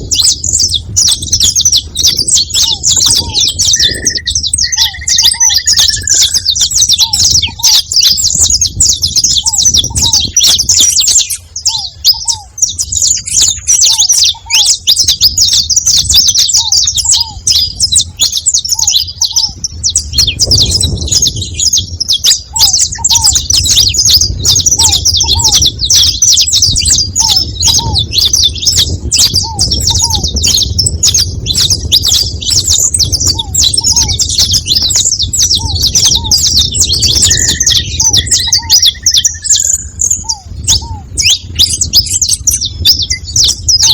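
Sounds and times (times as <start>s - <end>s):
finches chirping and chattering: 0.0s - 43.9s
short lower bird notes: 3.2s - 7.6s.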